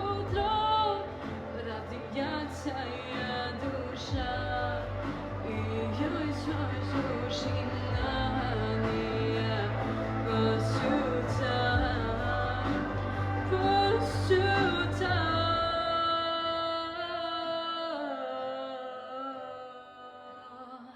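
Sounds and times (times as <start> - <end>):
bass line: 0.0 - 16.0
pop song singing: 0.0 - 20.9.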